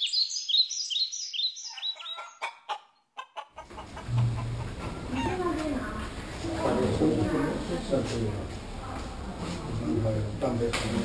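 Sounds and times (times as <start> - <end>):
birds chirping: 0.0 - 6.4
bird clucking calls: 1.6 - 5.6
low hum: 4.0 - 6.6.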